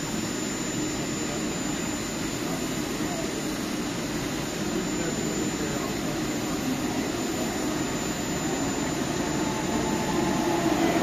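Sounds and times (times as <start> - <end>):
train whine: 4.5 - 11.0
train rushing rumble: 8.2 - 11.0.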